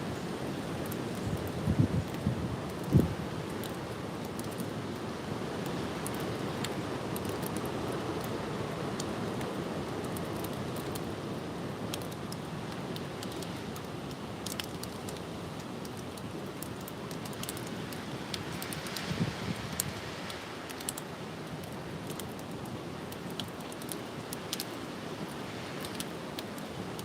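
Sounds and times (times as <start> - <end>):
light clicks and rustles: 0.8 - 11.2, 11.8 - 27.0
strong gusty wind: 1.2 - 3.2, 19.1 - 20.1.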